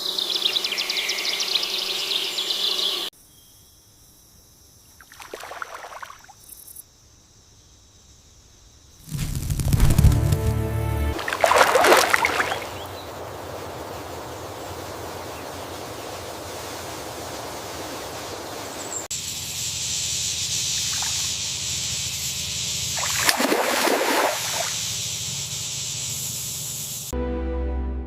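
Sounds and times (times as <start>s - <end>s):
water sloshing and trickling: 5.0s - 6.4s, 11.2s - 12.9s, 23.0s - 24.7s
water rushing: 9.8s - 13.4s, 23.0s - 24.7s
bright water hiss: 11.2s - 27.1s.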